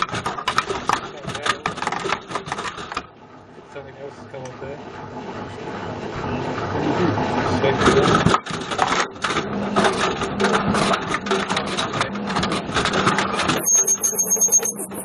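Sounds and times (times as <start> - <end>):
faint high whine: 13.6 - 15.0.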